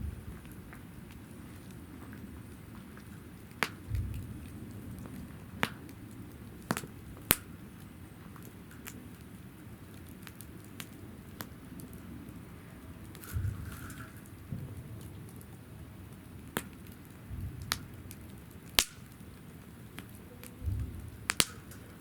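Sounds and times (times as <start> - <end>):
wood fire crackling: 0.0 - 22.0
low thuds: 20.6 - 21.3.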